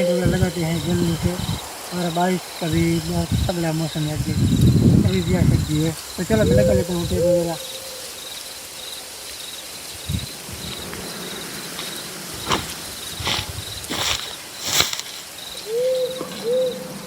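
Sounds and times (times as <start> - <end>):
crickets chirping: 0.0 - 17.0
sharp rustles: 11.7 - 16.6.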